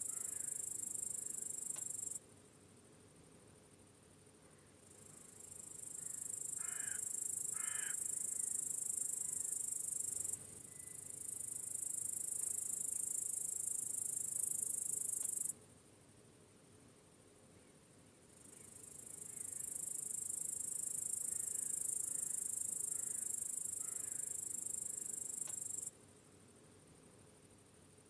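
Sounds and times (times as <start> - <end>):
crickets chirring: 0.0 - 2.2, 4.8 - 15.5, 18.3 - 28.0
crow cawing: 6.6 - 8.0, 22.9 - 24.3.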